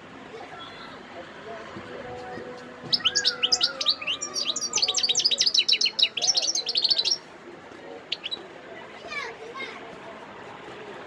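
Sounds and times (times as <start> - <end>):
goldfinch twittering song: 2.8 - 7.2, 8.1 - 8.4.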